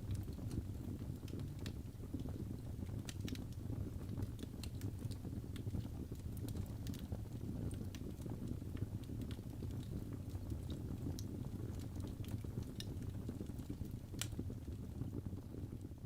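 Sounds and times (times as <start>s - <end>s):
fire pops and snaps: 0.0s - 16.0s
fire rumbling in fireplace: 0.0s - 16.0s.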